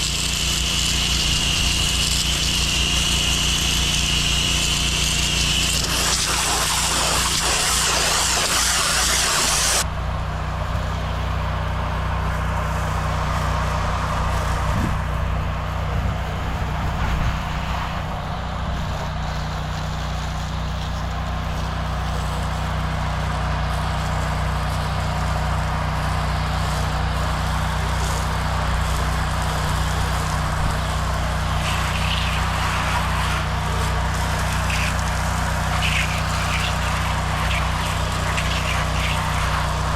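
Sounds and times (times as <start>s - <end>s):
high-pressure spray hissing: 0.0s - 9.8s, 31.0s - 39.9s
pressure washer engine running: 0.0s - 39.9s.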